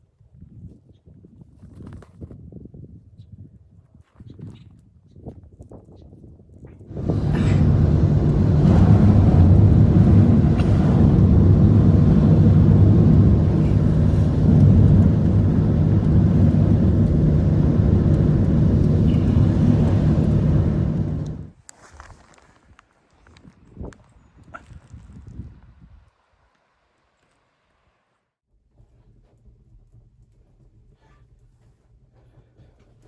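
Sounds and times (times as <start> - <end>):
wind buffeting microphone: 5.1 - 21.5.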